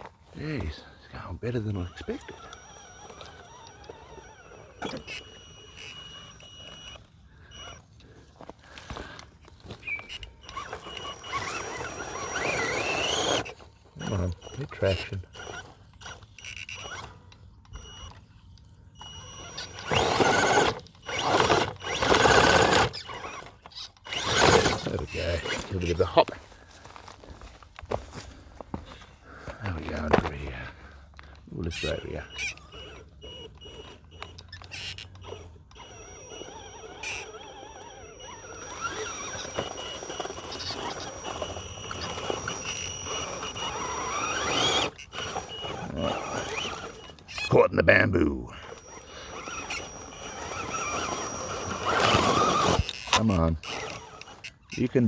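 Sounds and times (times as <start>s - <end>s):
rc car motor whirring: 0.0s - 55.0s
brush rustling against truck: 19.0s - 47.6s, 48.2s - 55.0s.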